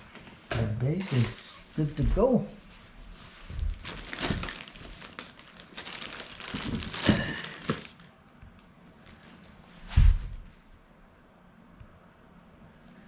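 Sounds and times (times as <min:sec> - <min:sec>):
plastic packaging crinkling: 0:03.6 - 0:08.2.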